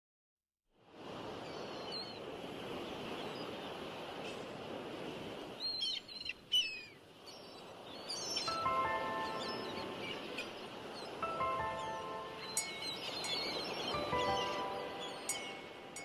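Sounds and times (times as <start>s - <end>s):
birds calling: 5.6s - 16.0s.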